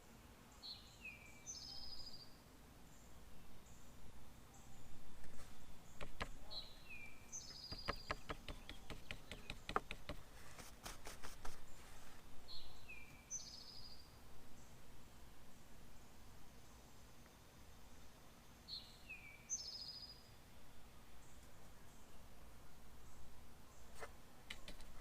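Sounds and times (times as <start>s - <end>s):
songbird singing: 0.0s - 25.0s
sharp clicks and taps: 6.0s - 6.4s, 7.7s - 10.2s, 24.5s - 25.0s.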